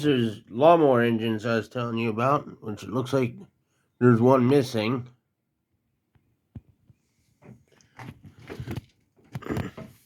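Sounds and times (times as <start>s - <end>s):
knocks clatters and rustles: 7.4s - 10.0s.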